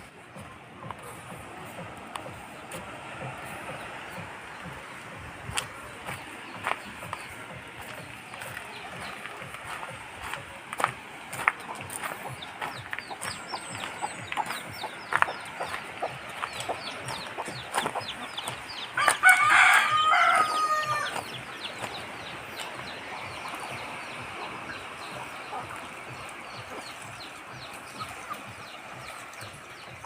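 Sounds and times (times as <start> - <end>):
poultry chirping: 11.7 - 29.9
rooster crowing: 19.0 - 21.2.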